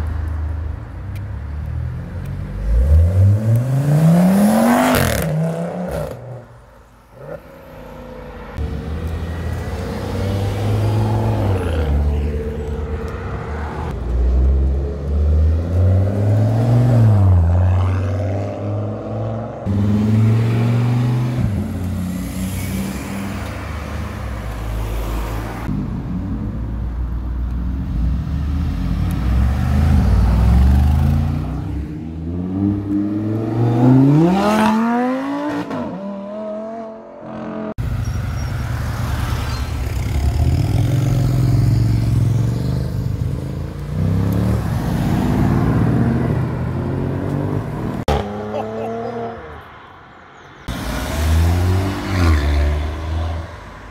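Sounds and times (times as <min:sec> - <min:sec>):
car engines accelerating hard: 0:27.8 - 0:37.9, 0:38.8 - 0:49.7, 0:50.6 - 0:53.9.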